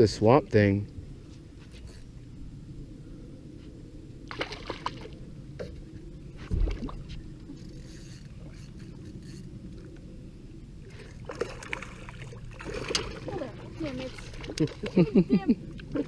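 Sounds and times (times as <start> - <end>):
water sloshing against boat hull: 4.3 - 10.0, 10.9 - 16.0.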